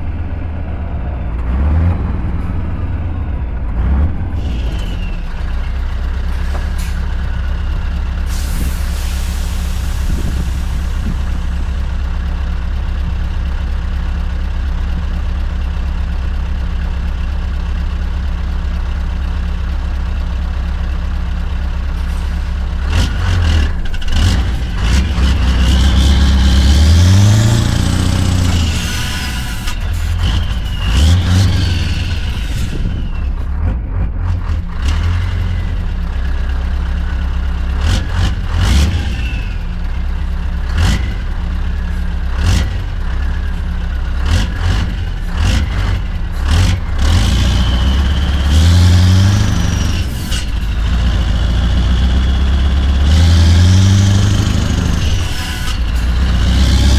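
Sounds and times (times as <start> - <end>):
truck engine revving: 0.0 - 12.4, 21.5 - 56.9.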